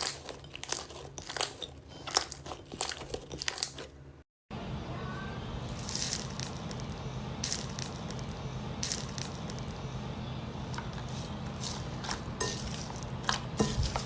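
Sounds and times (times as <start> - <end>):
low hum: 4.5 - 14.0.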